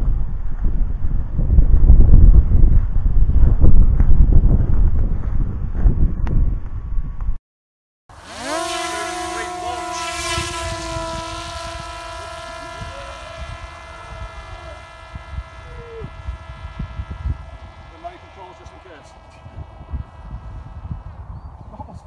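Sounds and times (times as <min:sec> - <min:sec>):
drone motor whine: 0:08.1 - 0:21.5.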